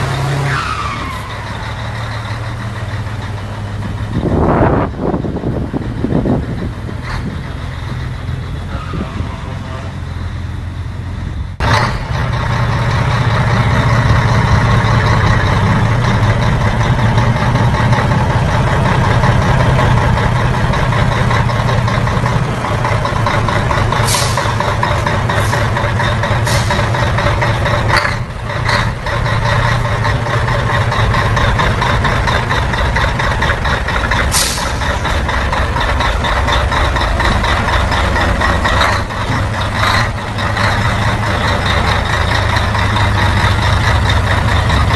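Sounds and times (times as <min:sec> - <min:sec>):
diesel truck engine humming: 0:00.0 - 0:44.9
short hisses: 0:24.0 - 0:24.5.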